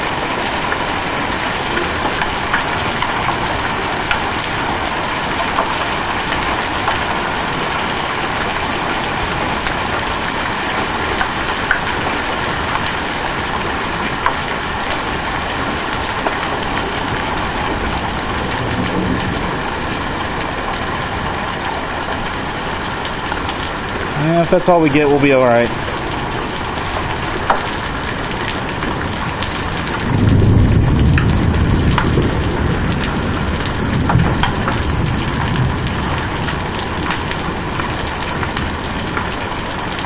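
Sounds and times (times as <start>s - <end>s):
hailstones clicking on hard surfaces: 0.1s - 7.4s, 23.1s - 40.0s
heavy hail hissing: 0.1s - 12.8s.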